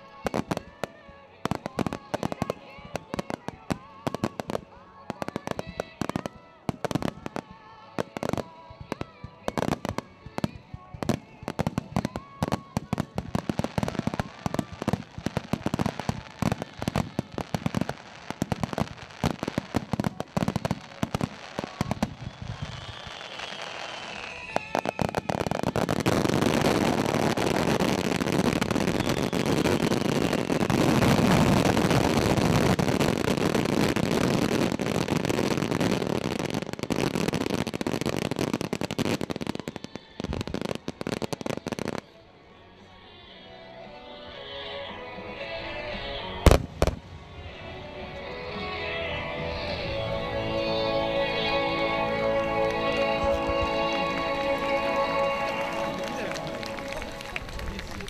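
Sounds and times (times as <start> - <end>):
fireworks bursting: 0.0 - 42.2, 45.5 - 58.0
fireworks crackle: 0.0 - 42.2, 45.5 - 58.0
firework whistle: 20.5 - 41.2.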